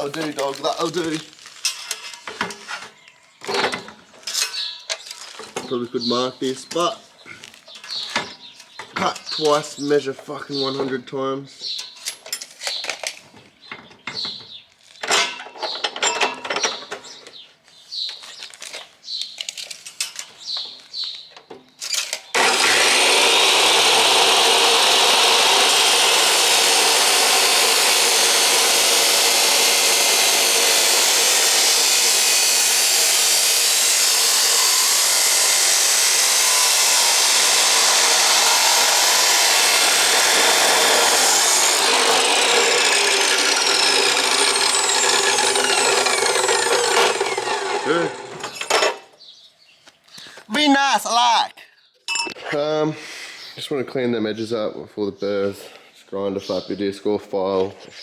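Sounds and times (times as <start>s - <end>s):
knocks and handling sounds: 0.0s - 5.7s, 18.0s - 22.3s
drop saw cutting metal pipe: 21.9s - 49.1s.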